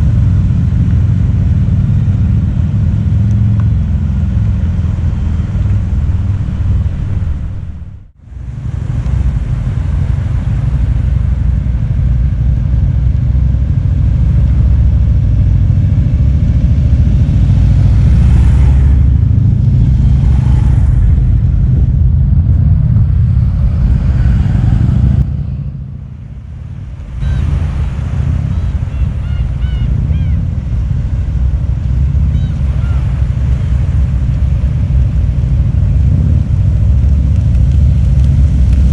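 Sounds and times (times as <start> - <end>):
motorcycles rumbling: 0.0 - 38.9.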